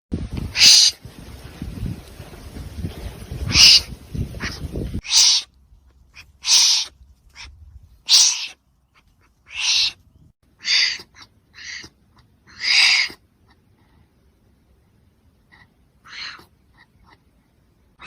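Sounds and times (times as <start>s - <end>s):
wombat breathy calls: 6.2s - 10.0s, 10.6s - 14.1s, 15.4s - 17.3s.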